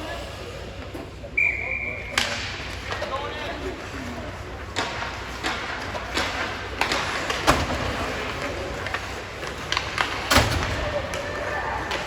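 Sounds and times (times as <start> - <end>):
hockey sticks and puck knocking: 4.4 - 12.0.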